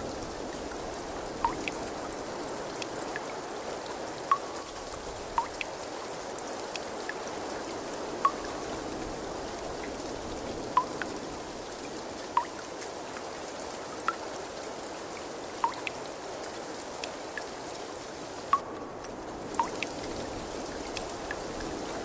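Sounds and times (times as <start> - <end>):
running water rushing: 0.0 - 22.0
water drops plopping: 1.4 - 1.8, 4.3 - 4.7, 5.4 - 5.7, 8.2 - 8.6, 10.8 - 11.1, 12.4 - 12.6, 15.6 - 16.0, 19.6 - 20.0.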